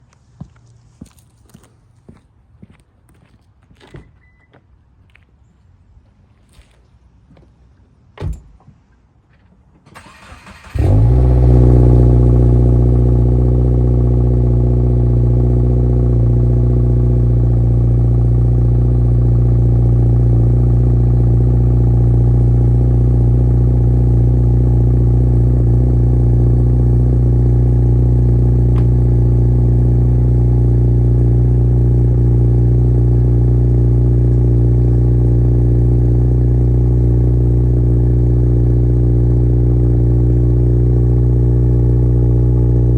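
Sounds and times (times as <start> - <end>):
car engine cold start and idle: 9.8 - 42.9.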